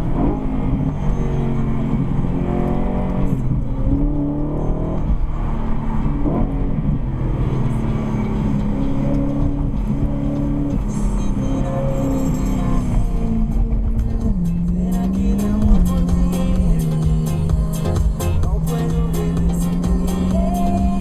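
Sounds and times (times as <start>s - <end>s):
car engine running: 0.0s - 21.0s
road noise: 0.0s - 21.0s.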